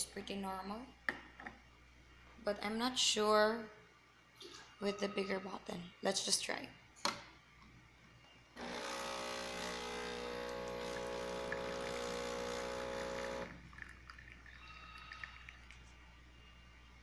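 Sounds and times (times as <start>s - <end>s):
coffee machine pump humming: 8.6s - 16.0s.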